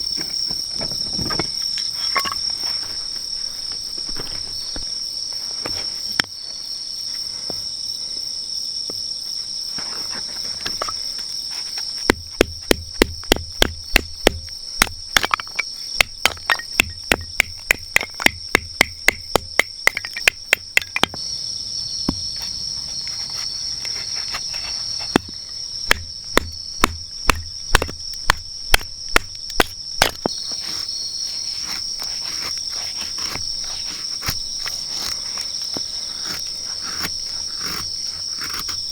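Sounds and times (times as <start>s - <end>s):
crickets chirring: 0.0s - 38.9s
sharp repeated knocks: 12.1s - 21.2s, 25.9s - 30.3s.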